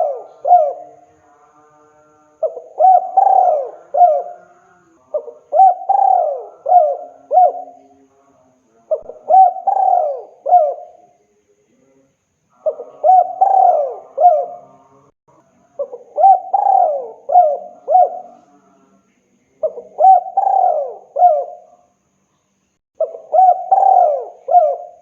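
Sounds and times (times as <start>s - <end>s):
dove cooing: 0.0s - 1.1s, 2.4s - 7.8s, 8.9s - 11.0s, 12.6s - 14.8s, 15.8s - 18.4s, 19.6s - 21.8s, 23.0s - 25.0s.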